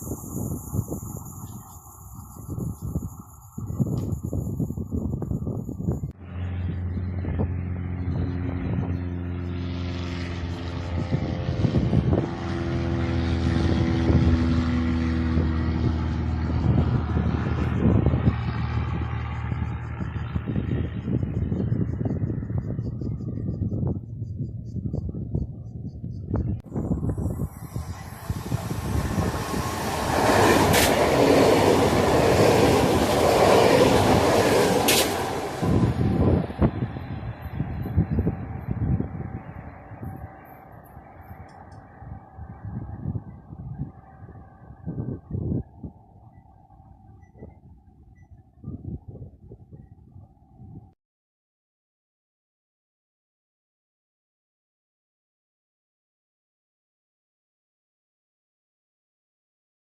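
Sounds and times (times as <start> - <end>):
train running noise: 0.0 - 7.5, 26.1 - 43.3
train hum: 0.0 - 48.5.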